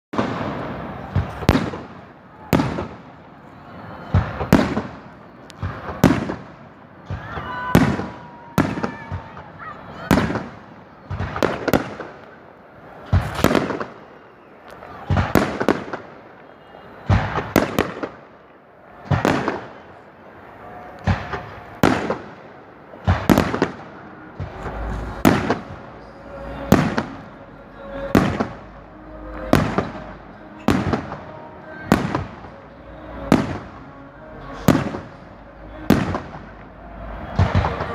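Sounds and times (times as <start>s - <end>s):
fireworks bursting: 0.1s - 37.9s.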